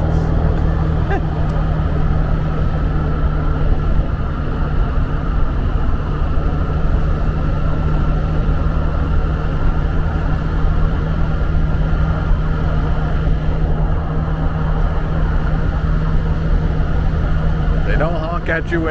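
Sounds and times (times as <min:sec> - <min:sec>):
motorbike engine running: 0:00.0 - 0:18.2
wind and road noise: 0:00.0 - 0:18.9.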